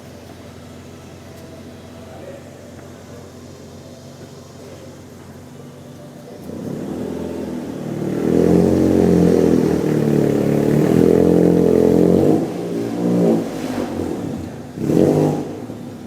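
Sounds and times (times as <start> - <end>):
car engine revving hard: 6.4 - 16.0.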